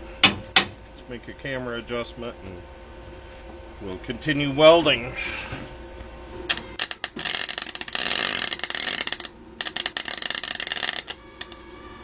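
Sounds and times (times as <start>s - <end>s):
welder arc crackling: 6.5s - 11.6s.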